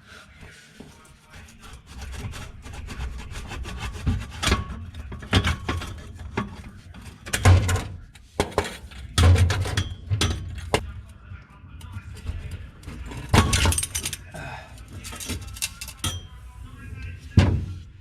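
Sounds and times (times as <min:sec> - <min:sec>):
metal knocks and scraping: 0:00.8 - 0:10.9, 0:14.9 - 0:17.9.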